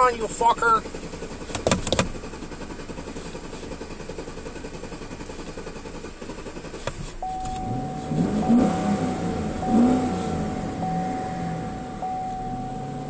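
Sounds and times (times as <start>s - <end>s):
car engine cranking: 0.0s - 13.0s
high warning tone: 7.2s - 13.0s.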